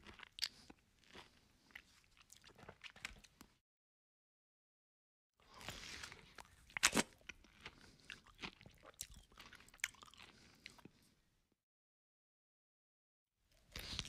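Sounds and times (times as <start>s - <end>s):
chewing and crunching food: 0.0s - 3.6s, 5.4s - 11.2s, 13.5s - 14.0s.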